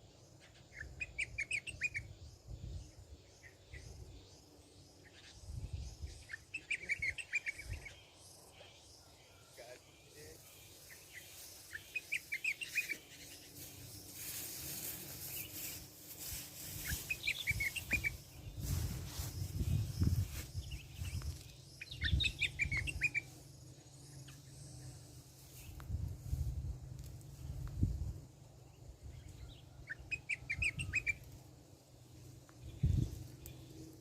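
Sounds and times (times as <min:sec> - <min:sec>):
birds chirping: 0:00.4 - 0:18.7, 0:19.3 - 0:25.8
rustling: 0:12.7 - 0:20.5.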